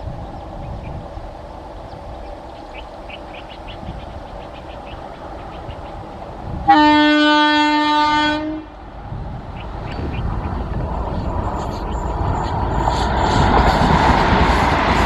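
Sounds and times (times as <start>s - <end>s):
train rumble: 0.0s - 15.0s
train horn blast: 6.7s - 8.7s.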